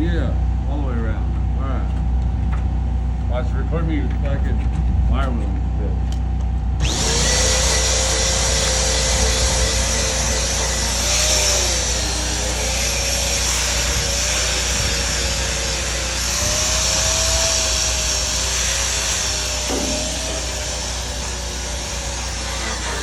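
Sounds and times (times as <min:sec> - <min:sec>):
wire wheel scrubbing steel: 0:06.8 - 0:23.0.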